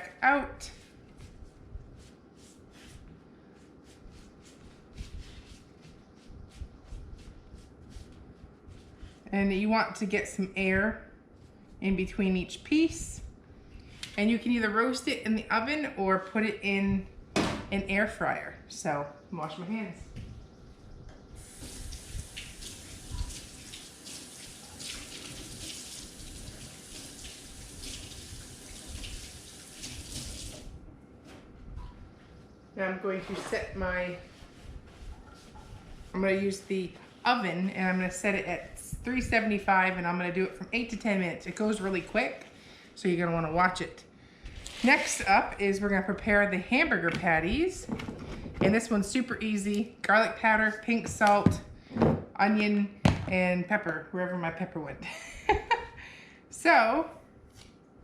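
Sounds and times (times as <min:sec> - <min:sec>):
faucet running: 0:21.4 - 0:30.7.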